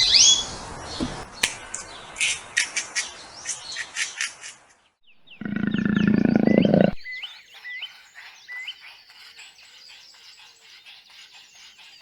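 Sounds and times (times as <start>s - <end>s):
birds chirping: 5.0s - 12.0s
big cat low rasping growl: 5.3s - 7.0s.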